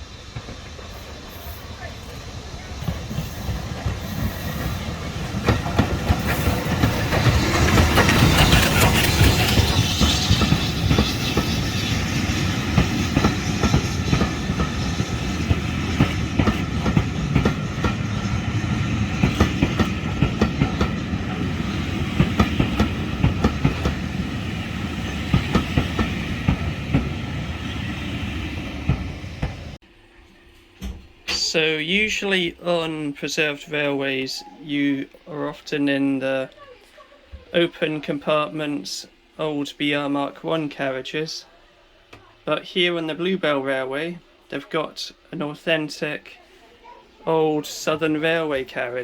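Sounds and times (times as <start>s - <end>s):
train wheels clattering on rails: 0.0s - 29.8s.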